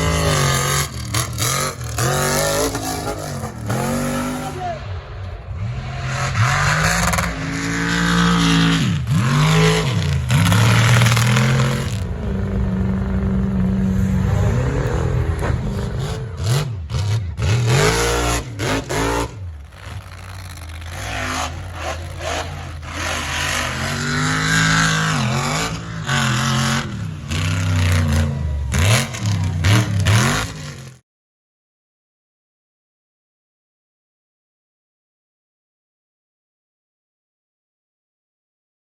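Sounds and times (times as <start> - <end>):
truck engines revving: 0.0 - 31.0.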